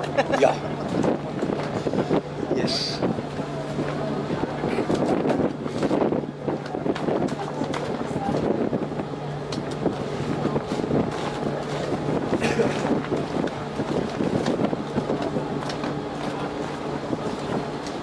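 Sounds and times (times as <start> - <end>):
boat engine humming: 0.0 - 18.0
wind buffeting microphone: 0.0 - 18.0.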